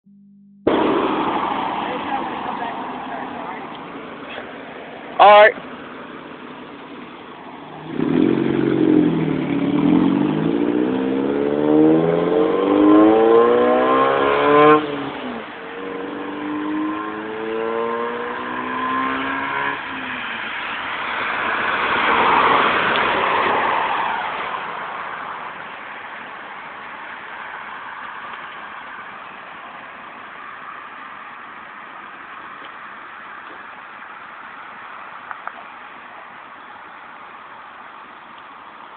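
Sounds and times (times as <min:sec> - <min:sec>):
car exhaust accelerating: 0:00.1 - 0:23.4
broad rush of noise: 0:00.6 - 0:18.7.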